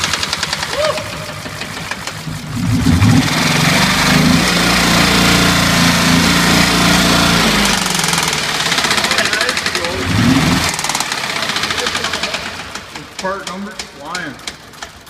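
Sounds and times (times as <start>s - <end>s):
engine knocking: 0.0s - 4.2s, 7.5s - 15.0s
car engine revving: 0.0s - 14.8s.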